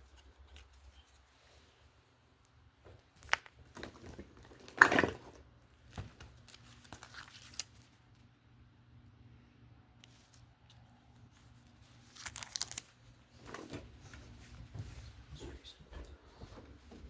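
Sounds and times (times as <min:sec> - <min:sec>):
faint low hum: 0:00.0 - 0:17.0
crinkling rustling handling noise: 0:02.8 - 0:08.3, 0:10.0 - 0:15.3.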